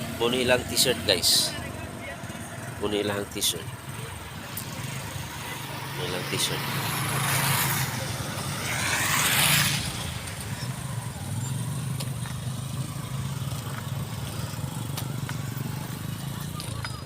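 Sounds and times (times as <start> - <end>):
engine humming: 0.0 - 17.0
loud rushing noise: 5.7 - 10.6.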